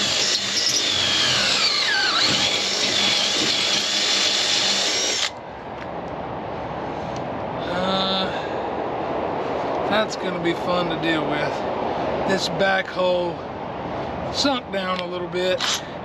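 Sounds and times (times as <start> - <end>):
power drill boring metal: 0.0 - 5.3.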